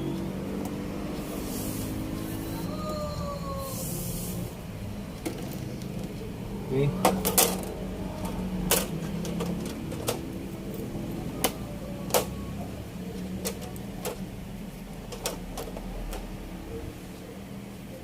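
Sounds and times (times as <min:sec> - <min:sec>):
clicks and knocks of parts handled: 0:07.0 - 0:12.4, 0:13.1 - 0:16.4.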